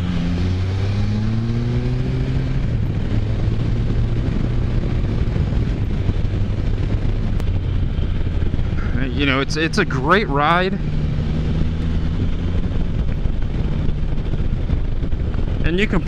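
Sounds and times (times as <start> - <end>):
motorcycle engine revving: 0.0 - 16.0
wind rushing: 0.0 - 16.0.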